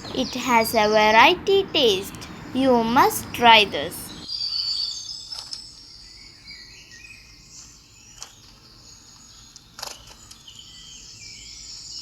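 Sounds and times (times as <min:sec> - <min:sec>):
faint birds chirping: 0:00.0 - 0:04.2.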